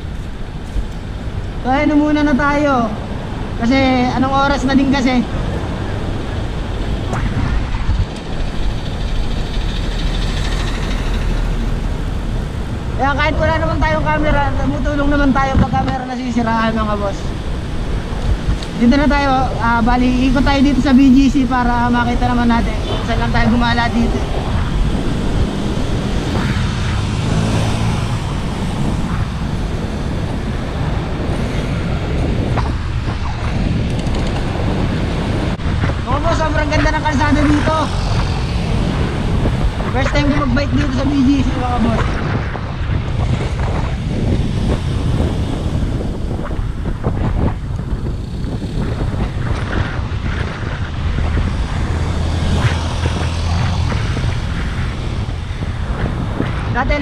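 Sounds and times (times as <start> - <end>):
city traffic: 0.0 - 57.0
wind rumble on microphone: 0.0 - 57.0
passing vehicle engine drone: 3.0 - 16.0, 16.8 - 57.0.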